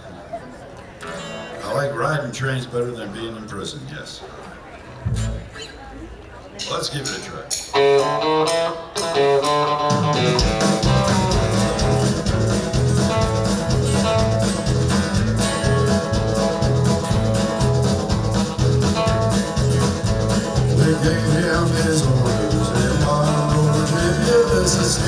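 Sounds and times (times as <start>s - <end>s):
guitar picking a melody: 1.0s - 1.8s, 5.0s - 5.6s, 7.7s - 25.0s
bass and drums rhythm: 5.1s - 5.5s, 7.5s - 25.0s.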